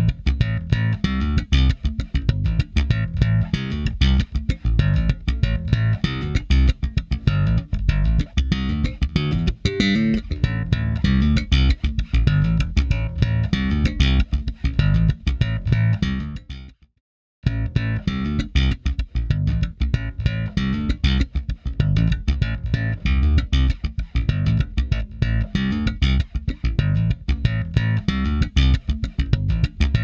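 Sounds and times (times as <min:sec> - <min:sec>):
plucked bass guitar line: 0:00.0 - 0:16.8, 0:17.4 - 0:30.0.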